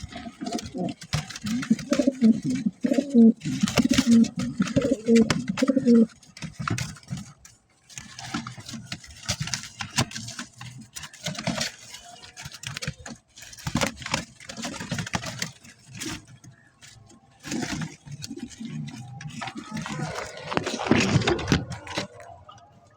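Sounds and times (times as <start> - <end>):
pigeons cooing: 0.0 - 6.2, 16.0 - 22.9
scuffling and tapping: 0.0 - 22.9
wings rustling: 0.0 - 22.9.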